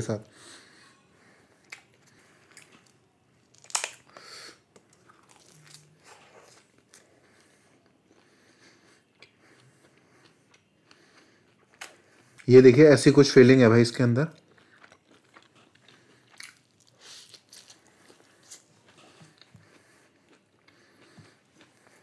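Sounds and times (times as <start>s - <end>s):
quiet chewing: 1.6s - 3.0s, 3.6s - 12.5s, 14.3s - 22.0s.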